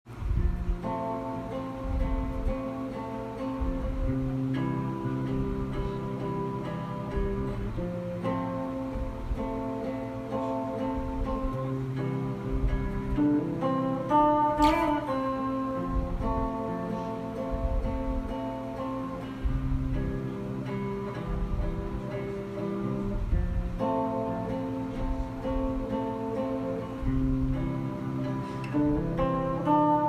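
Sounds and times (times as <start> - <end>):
acoustic guitar chords: 0.1 - 30.0.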